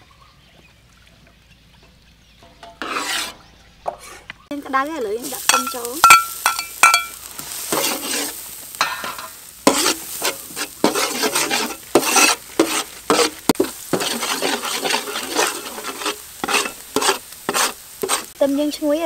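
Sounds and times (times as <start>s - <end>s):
metal ladle scraping wok: 2.4s - 18.4s
garlic sizzling in hot oil: 4.4s - 19.0s.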